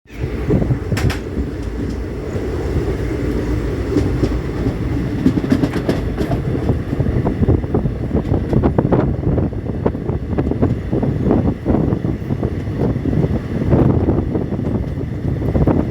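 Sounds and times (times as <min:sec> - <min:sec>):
train rumbling and clattering: 0:00.0 - 0:15.9.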